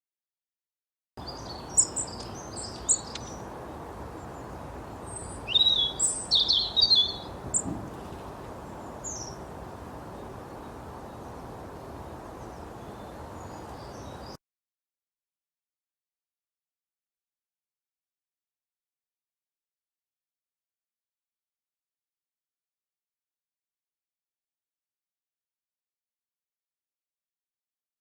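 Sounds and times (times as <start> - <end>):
songbird chirps and trills: 1.2 - 14.4.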